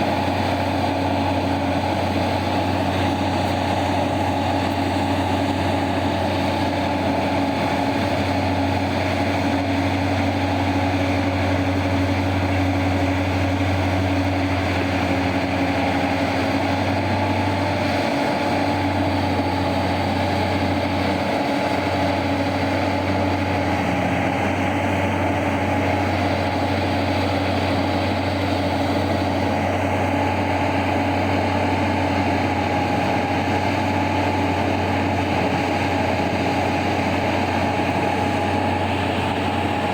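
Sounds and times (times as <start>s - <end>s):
large diesel engine humming: 0.0s - 39.9s.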